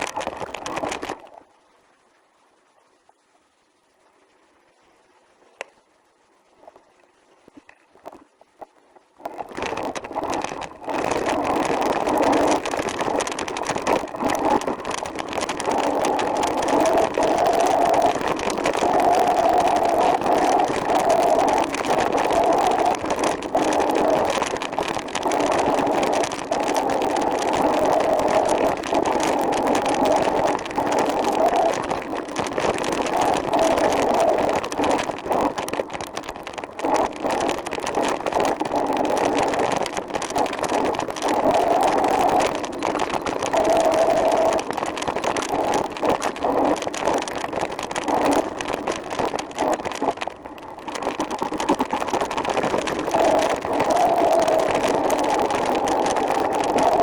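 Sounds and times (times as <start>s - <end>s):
tyre and wind noise: 9.2s - 57.0s.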